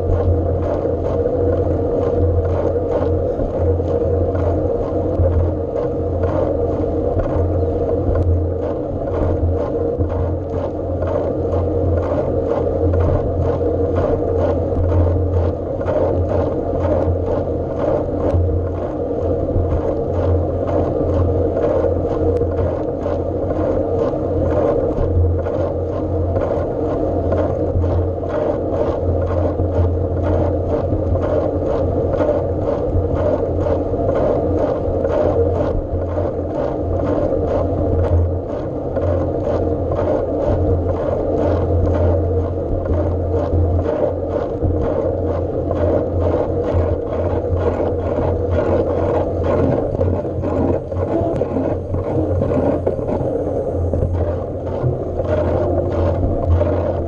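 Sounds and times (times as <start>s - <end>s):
bike riding hum: 43.0s - 57.0s.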